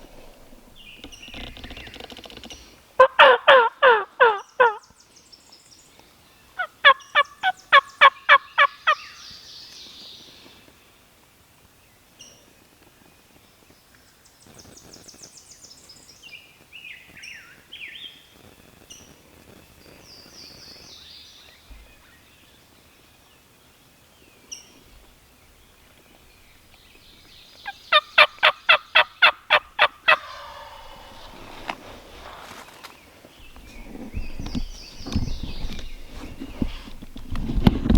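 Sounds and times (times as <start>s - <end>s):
songbirds chirping and trilling: 0.0s - 37.9s
turkey yelps: 3.0s - 4.8s, 6.6s - 9.0s, 27.7s - 31.6s.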